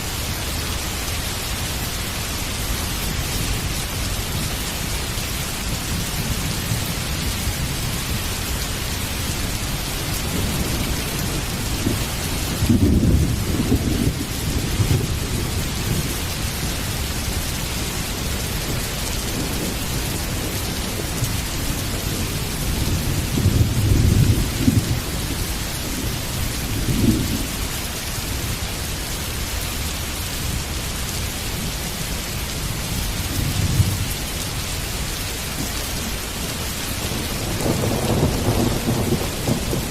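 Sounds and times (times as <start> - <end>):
heavy rain falling: 0.0 - 39.9
thunder rumbling: 5.6 - 27.7, 35.6 - 39.9.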